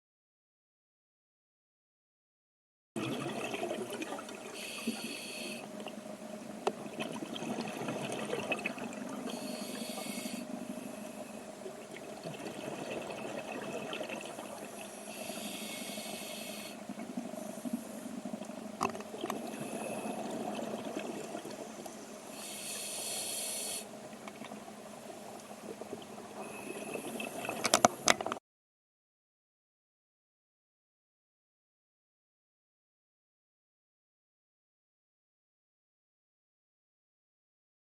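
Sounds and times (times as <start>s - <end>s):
exhaled bubbles from regulator: 3.0s - 28.2s
low watery rumble: 3.0s - 28.4s.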